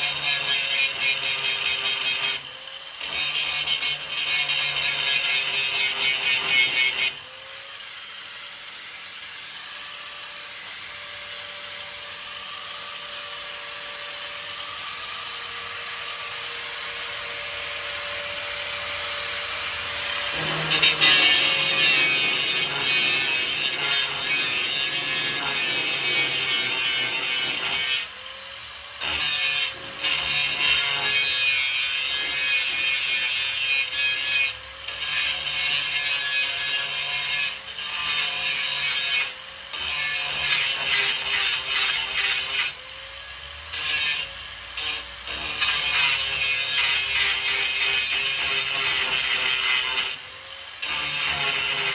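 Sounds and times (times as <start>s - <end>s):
grinder grinding metal: 0.0s - 51.9s
grinder motor tone: 16.0s - 28.2s.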